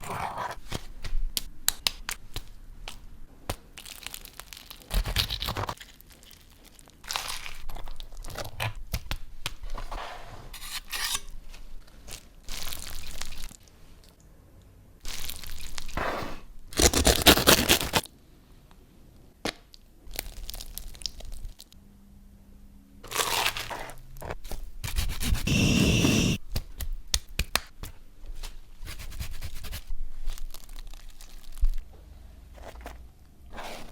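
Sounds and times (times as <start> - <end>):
crisp cracks and crunches: 1.8 - 9.1, 16.7 - 18.1, 20.1 - 21.8, 30.2 - 31.8
tearing and crinkling: 16.7 - 18.1, 30.3 - 31.8.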